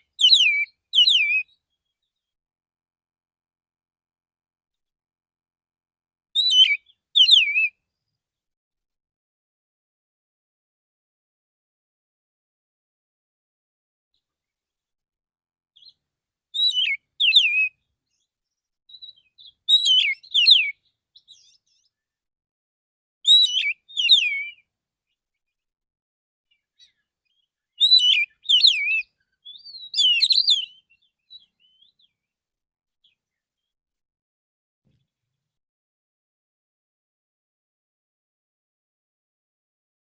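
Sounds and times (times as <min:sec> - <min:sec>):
bird singing whistled notes: 0:00.1 - 0:01.7, 0:06.4 - 0:07.8, 0:16.6 - 0:22.1, 0:23.3 - 0:24.7, 0:26.5 - 0:32.2.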